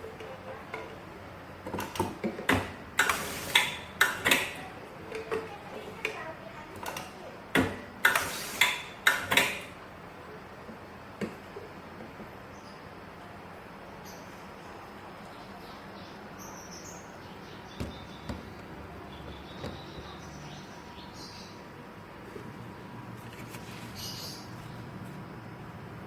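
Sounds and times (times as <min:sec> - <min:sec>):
labeling machine clicks and clatter: 0:01.6 - 0:05.4.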